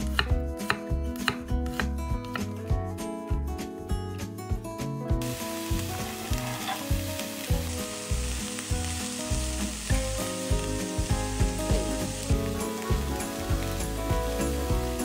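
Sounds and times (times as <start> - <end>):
food sizzling in hot oil: 5.2 - 15.0
stirring in a pan: 5.2 - 15.0.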